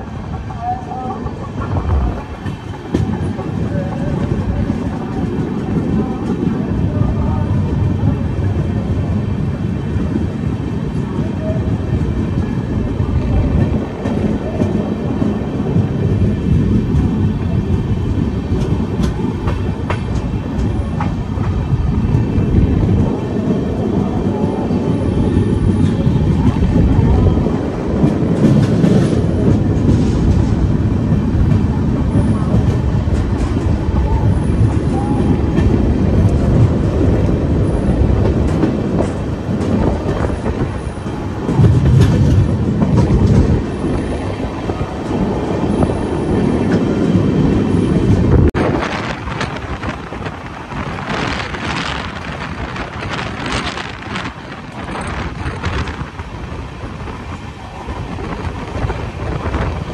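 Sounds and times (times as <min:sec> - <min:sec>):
train wheels rumbling on rails: 0:00.0 - 0:59.9
wind rushing past microphone: 0:00.0 - 0:59.9.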